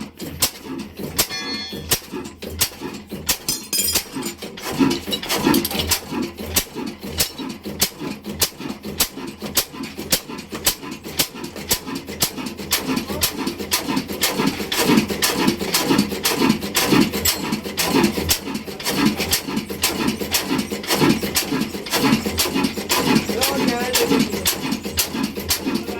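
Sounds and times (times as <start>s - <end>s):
oil engine chugging: 0.0s - 25.9s.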